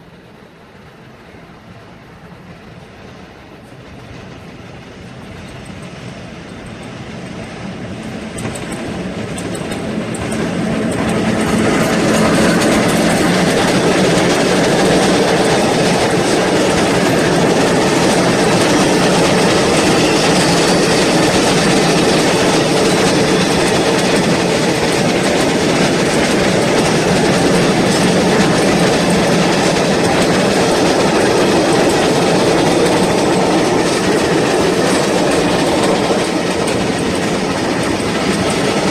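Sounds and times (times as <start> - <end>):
train passing: 0.0 - 38.9
wheels clattering over rail joints: 8.0 - 38.9.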